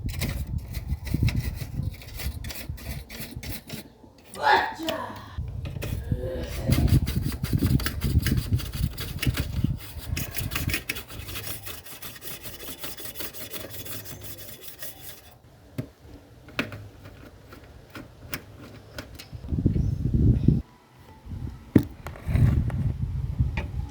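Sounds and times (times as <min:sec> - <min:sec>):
rubbing on a hard surface: 0:05.8 - 0:15.4.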